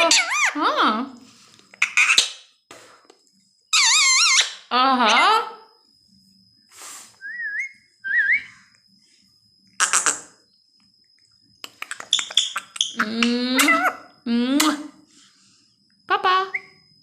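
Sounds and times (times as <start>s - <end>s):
parrot squawking: 0.0s - 0.6s, 1.8s - 2.4s, 3.7s - 5.4s, 11.8s - 14.1s
parrot whistling: 3.8s - 4.6s, 7.2s - 8.6s
parrot clicks and chirps: 11.6s - 13.9s.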